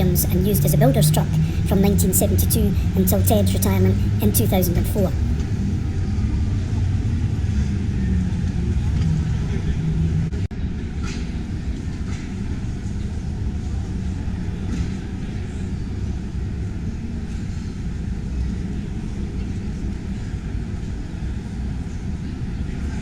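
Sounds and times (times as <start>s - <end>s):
busy exhibition hall roar: 0.0s - 5.8s.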